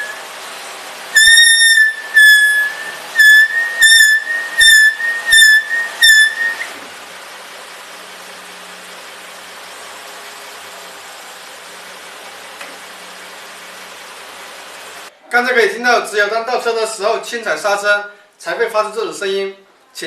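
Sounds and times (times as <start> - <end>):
disc brake squealing: 0.0 - 0.3, 1.2 - 6.8.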